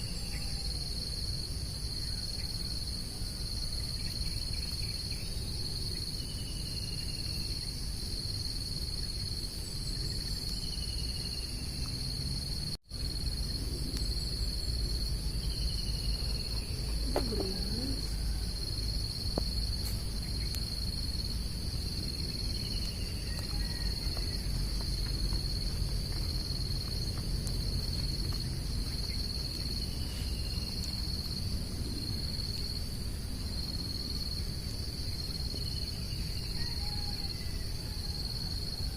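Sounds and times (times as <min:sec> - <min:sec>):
insects chirring: 0:00.0 - 0:38.9
low background rumble: 0:11.2 - 0:36.2.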